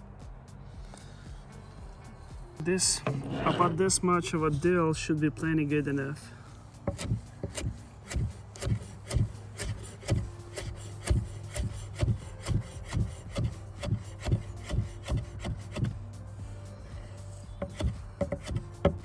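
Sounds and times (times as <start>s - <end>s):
knife chopping on cutting board: 6.9s - 15.9s, 17.6s - 19.0s.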